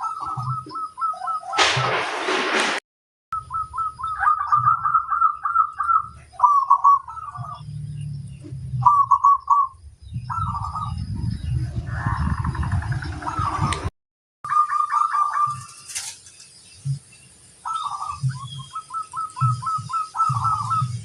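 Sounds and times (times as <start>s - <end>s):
dove cooing: 3.5s - 8.0s, 8.7s - 13.9s, 17.7s - 21.0s.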